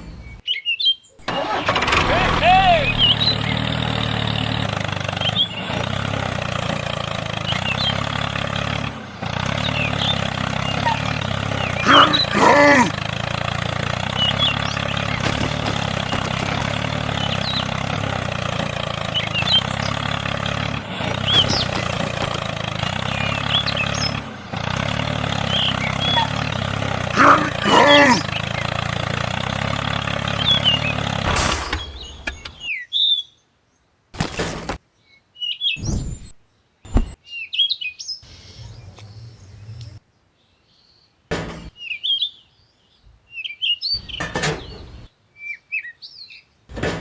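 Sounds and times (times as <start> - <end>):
animal call with bending pitch: 9.4 - 13.2, 25.0 - 28.7.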